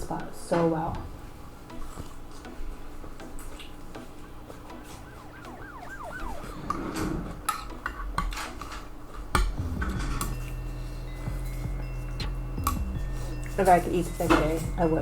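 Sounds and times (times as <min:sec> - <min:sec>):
warbling tone: 0:04.8 - 0:08.0.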